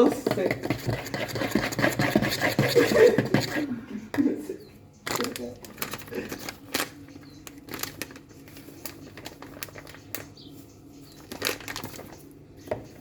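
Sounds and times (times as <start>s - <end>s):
kitchen items clicking and knocking: 0.0s - 3.6s.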